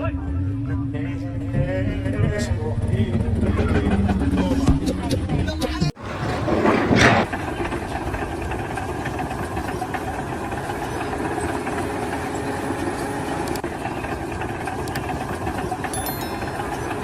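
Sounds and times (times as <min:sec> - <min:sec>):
engine idling: 0:06.0 - 0:17.0.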